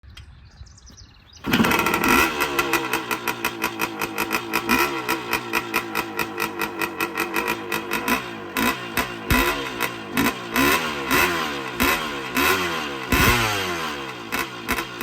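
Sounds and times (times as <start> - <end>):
electric dirt bike motor running: 1.4 - 15.0.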